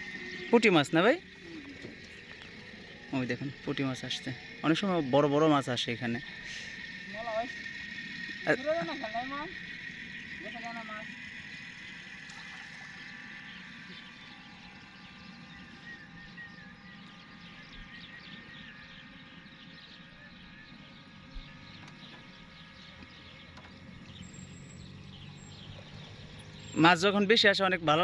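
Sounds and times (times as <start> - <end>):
thin high tone: 0.0 - 16.2
many small chirps: 0.0 - 28.0.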